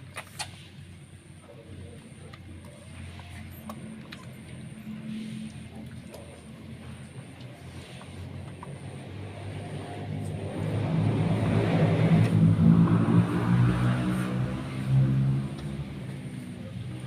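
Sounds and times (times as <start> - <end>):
passing vehicle engine: 6.9 - 17.0.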